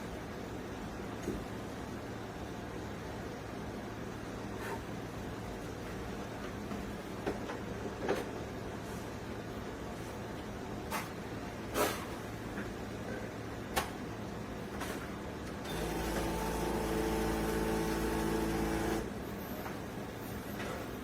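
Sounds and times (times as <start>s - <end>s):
espresso machine pump humming: 15.7s - 19.2s.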